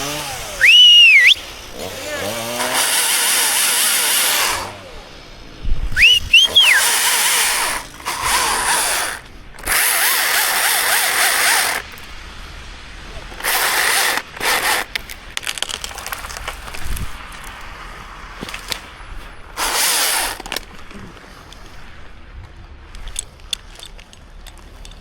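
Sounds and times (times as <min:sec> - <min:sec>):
chainsaw cutting wood: 0:00.0 - 0:05.1, 0:06.0 - 0:12.0, 0:13.3 - 0:17.5, 0:19.5 - 0:21.7.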